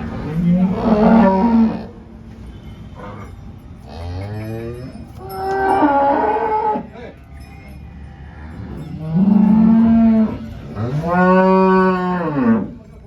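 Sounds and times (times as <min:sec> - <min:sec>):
cows mooing: 0:00.0 - 0:02.0, 0:03.0 - 0:07.0, 0:08.2 - 0:12.8.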